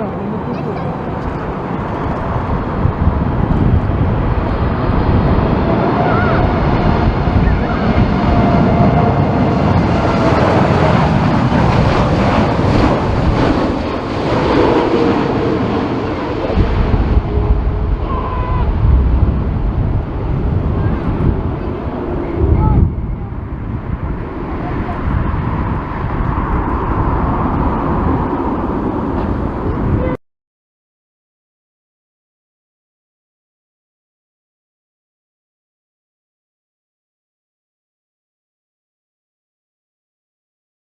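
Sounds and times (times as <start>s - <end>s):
jet engine noise passing: 0.0s - 30.2s
wind buffeting microphone: 0.0s - 30.2s.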